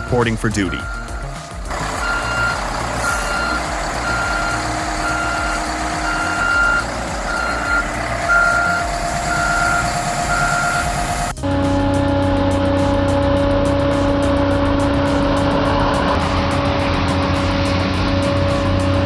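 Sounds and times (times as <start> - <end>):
back-up alarm beeping: 0.0 - 1.4, 2.0 - 11.1
diesel engine running: 0.0 - 19.0.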